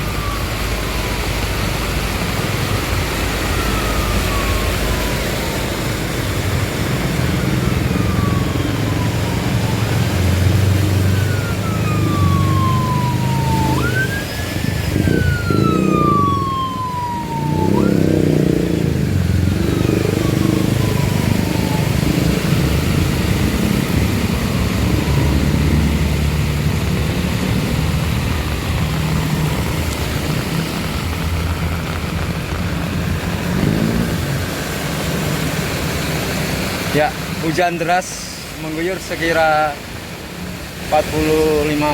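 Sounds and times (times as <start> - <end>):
siren wailing: 0.0 - 34.0
traffic engines rumbling: 0.0 - 41.9.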